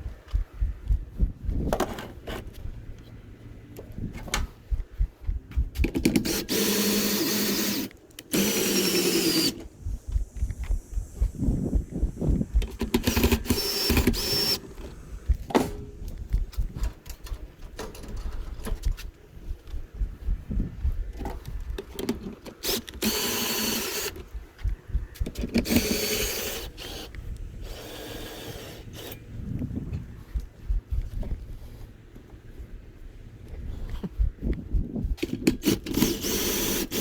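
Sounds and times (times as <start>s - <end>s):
power drill running: 6.1s - 9.6s, 12.5s - 15.1s, 22.6s - 24.3s, 25.5s - 29.2s, 35.6s - 37.0s.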